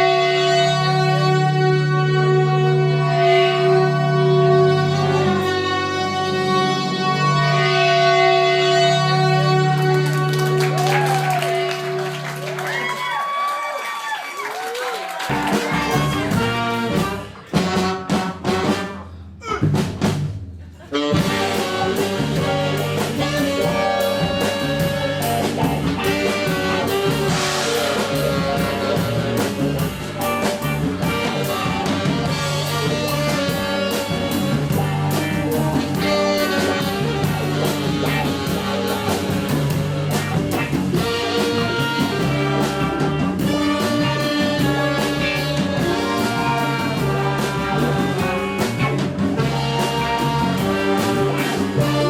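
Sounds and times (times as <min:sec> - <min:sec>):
bass line: 0:00.0 - 0:12.9, 0:15.3 - 0:52.0
horns playing melody: 0:00.0 - 0:13.5, 0:14.8 - 0:19.3, 0:20.9 - 0:52.0
steady drum beat: 0:15.3 - 0:52.0.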